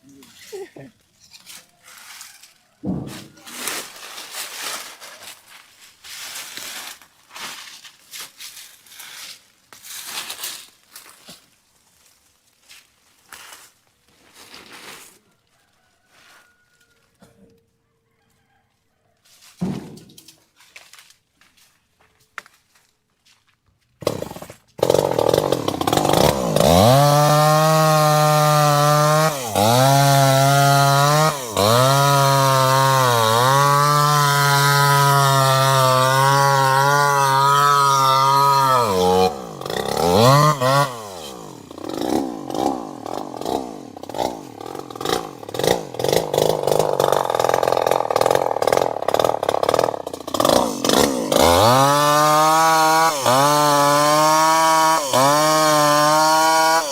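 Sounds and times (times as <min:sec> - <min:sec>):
chainsaw engine running: 0:24.0 - 0:56.9.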